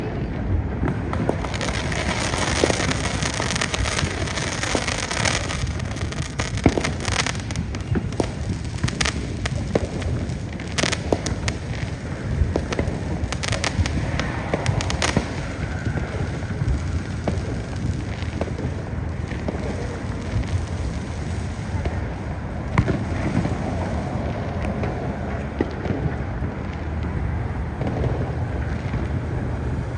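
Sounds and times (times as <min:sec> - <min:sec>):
fireworks rumble and crackle: 0:00.0 - 0:29.9
sharp firework cracks: 0:00.8 - 0:24.9.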